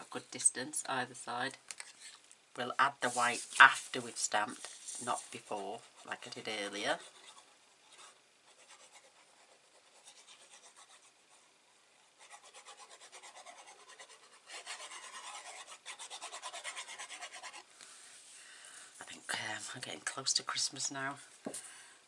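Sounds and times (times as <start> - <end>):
paper rubbing strokes: 3.0 - 18.4.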